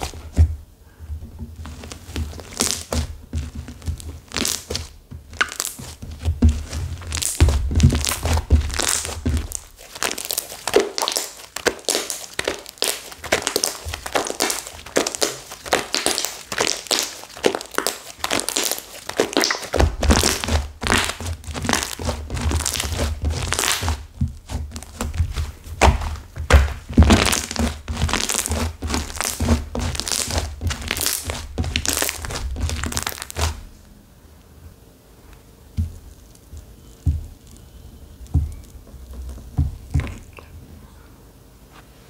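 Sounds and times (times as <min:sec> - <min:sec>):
soft low thuds: 0:00.0 - 0:09.8, 0:35.7 - 0:40.4
slime crackling and crunching: 0:01.7 - 0:33.8, 0:35.7 - 0:40.5.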